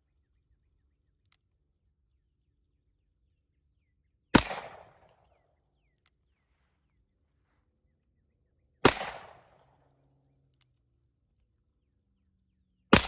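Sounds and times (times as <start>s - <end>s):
revolver gunshots with echo: 4.3s - 5.4s, 8.8s - 9.8s.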